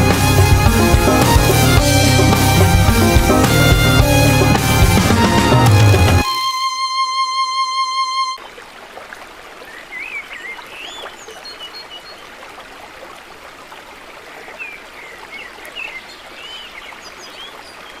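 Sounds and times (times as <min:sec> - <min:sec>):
stream water rushing: 0:08.4 - 0:18.0.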